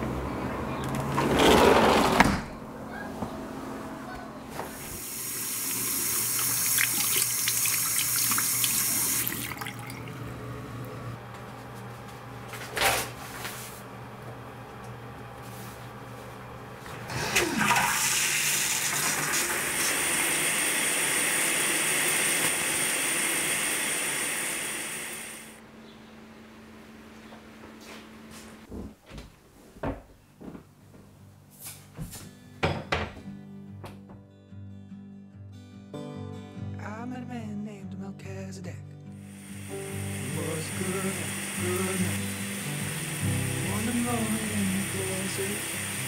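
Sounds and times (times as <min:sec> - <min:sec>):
water running: 0:04.6 - 0:11.0, 0:17.0 - 0:25.6, 0:39.2 - 0:46.0.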